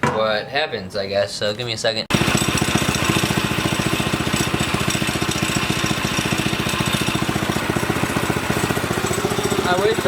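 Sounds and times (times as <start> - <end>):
small engine idling: 2.1 - 10.0.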